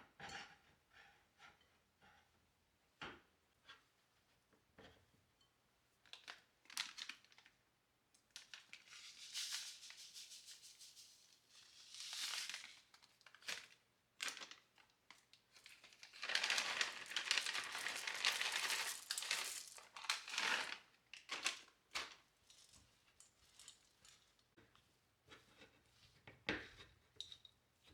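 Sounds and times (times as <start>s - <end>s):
packaging rustling and crinkling: 11.9s - 22.2s.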